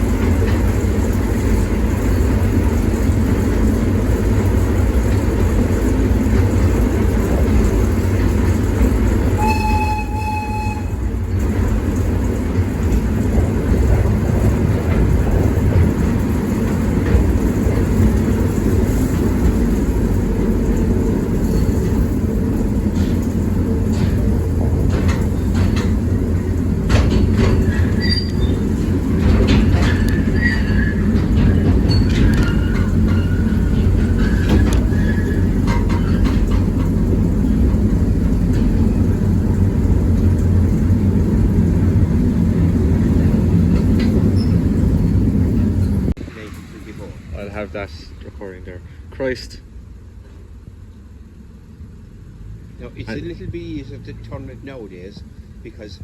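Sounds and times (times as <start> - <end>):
monorail train rumbling: 0.0 - 56.0
train horn: 9.4 - 11.2.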